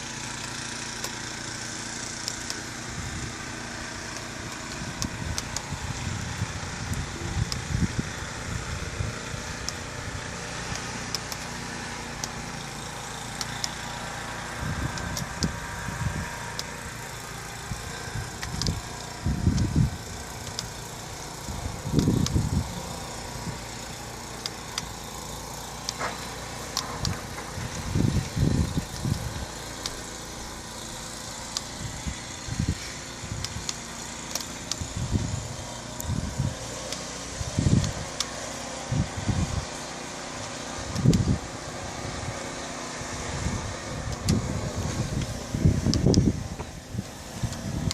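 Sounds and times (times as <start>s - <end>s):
wind buffeting microphone: 4.8s - 9.4s, 17.6s - 20.2s, 21.4s - 23.6s, 26.8s - 29.6s, 34.8s - 36.6s, 38.9s - 39.7s, 43.1s - 47.9s.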